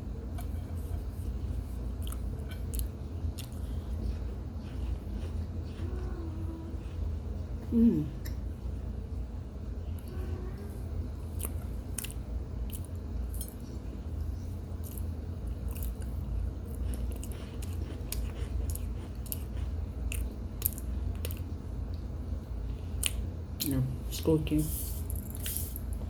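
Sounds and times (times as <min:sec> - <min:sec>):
squeaky crackly chewing: 0:15.7 - 0:21.5.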